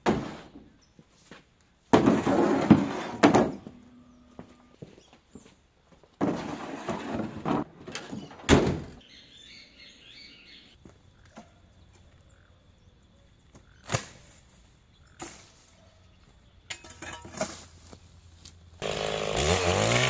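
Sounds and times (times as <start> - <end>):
scraping rustle: 2.0 - 5.4, 6.2 - 8.5
bird chirping: 9.0 - 13.9.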